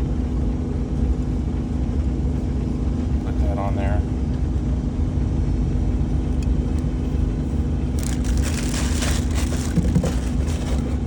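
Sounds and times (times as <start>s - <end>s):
low mechanical drone: 0.0s - 11.0s
parts crinkling and rustling: 7.9s - 11.0s.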